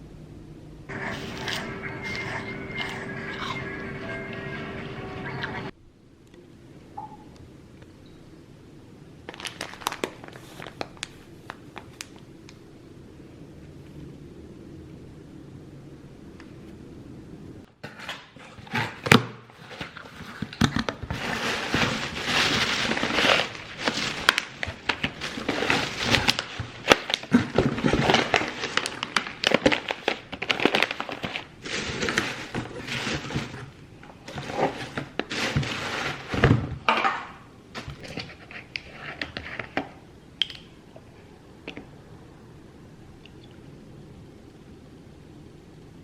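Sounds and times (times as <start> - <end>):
objects being handled: 17.8 - 40.6.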